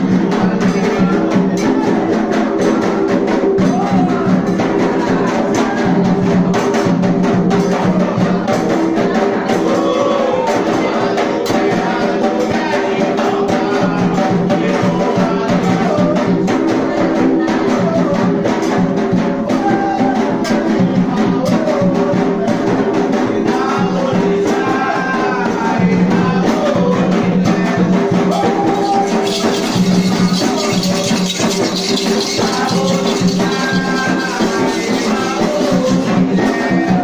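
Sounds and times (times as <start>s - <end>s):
hand drums playing: 0.0s - 37.0s
voices chanting: 0.0s - 37.0s
sharp knocking percussion: 10.6s - 37.0s.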